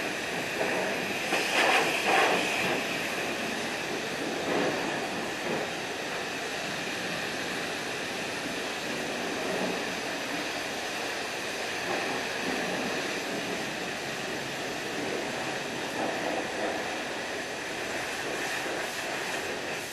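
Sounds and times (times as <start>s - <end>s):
pressure washer spraying water: 1.3s - 2.9s.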